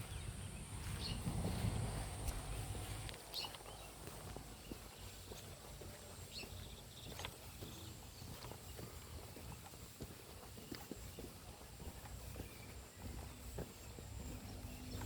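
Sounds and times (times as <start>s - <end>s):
wind rumbling on microphone: 0.0s - 5.4s
bird chirps: 0.0s - 9.8s, 10.4s - 15.0s.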